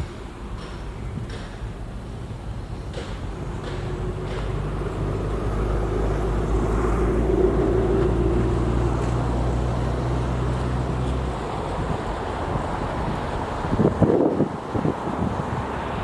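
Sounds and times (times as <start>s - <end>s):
vehicle engine passing by: 3.4s - 16.0s.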